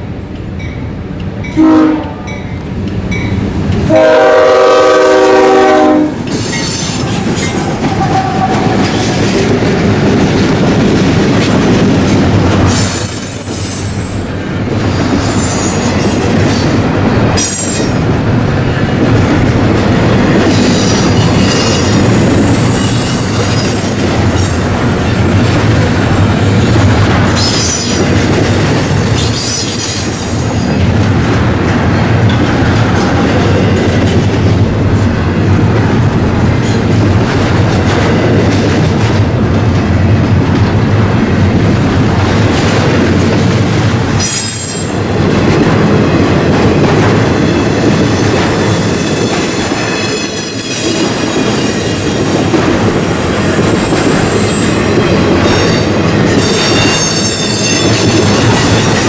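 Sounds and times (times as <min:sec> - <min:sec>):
train cars rumbling and clattering: 0:00.0 - 0:59.0
locomotive horn blast: 0:01.6 - 0:02.3, 0:03.9 - 0:06.2
high wheel squeals: 0:20.6 - 0:24.2.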